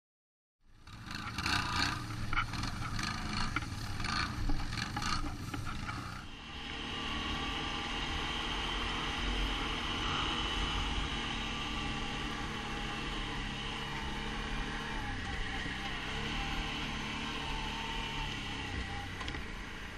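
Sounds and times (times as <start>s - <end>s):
atv engine running: 0.7s - 19.9s.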